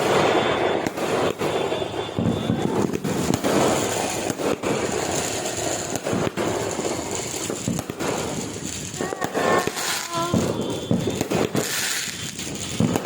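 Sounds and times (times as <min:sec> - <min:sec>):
fireworks bangs: 0:00.0 - 0:13.0
crackling hiss: 0:03.0 - 0:13.0.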